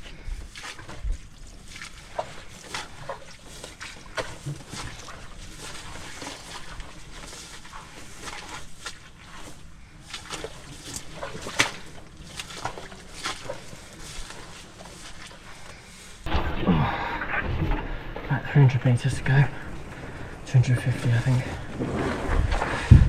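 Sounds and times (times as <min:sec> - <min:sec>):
brush rustling: 0:00.0 - 0:23.0
footsteps on forest trail: 0:00.0 - 0:23.0
twigs crackling: 0:02.0 - 0:23.0
hard breathing: 0:15.4 - 0:18.2, 0:19.5 - 0:20.5.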